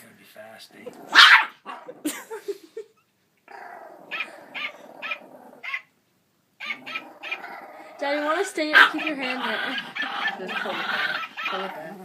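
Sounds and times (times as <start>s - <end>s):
dog barking: 1.1s - 1.8s, 8.7s - 11.6s.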